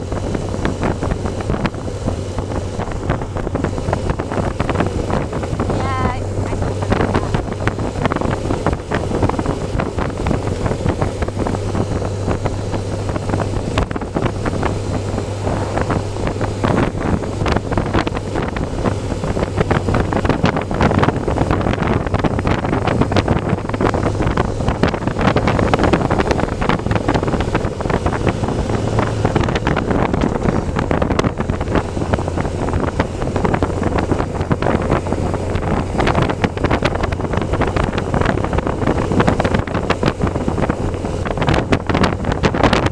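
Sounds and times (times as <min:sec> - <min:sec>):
motorcycle engine running: 0:00.0 - 0:42.9
wind rushing over microphone: 0:00.0 - 0:42.9.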